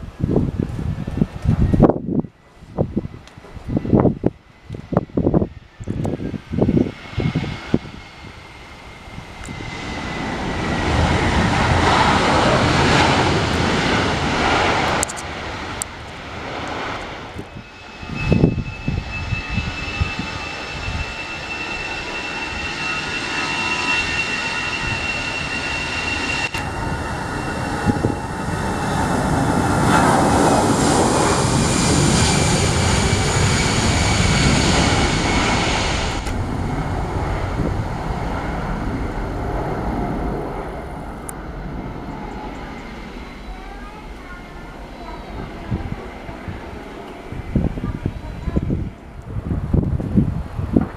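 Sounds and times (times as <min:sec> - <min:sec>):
airliner engines roaring: 0:00.0 - 0:50.9
high engine whine: 0:03.5 - 0:50.9.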